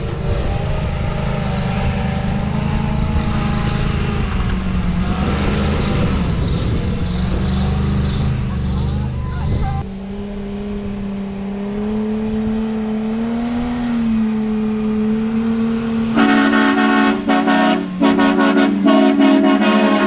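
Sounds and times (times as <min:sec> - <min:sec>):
engine droning under load: 0:00.0 - 0:20.0
vehicle horn short blasts: 0:16.2 - 0:20.0.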